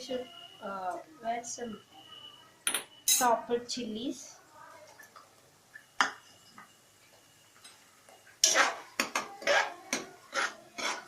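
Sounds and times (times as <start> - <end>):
spoon stirring frying onions: 5.0 - 11.0.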